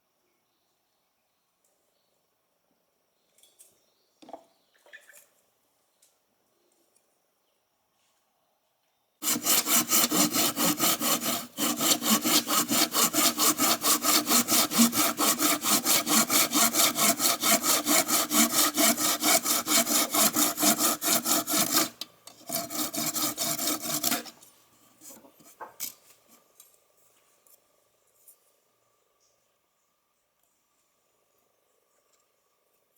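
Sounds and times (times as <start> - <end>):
saw cutting wood: 9.2 - 24.4.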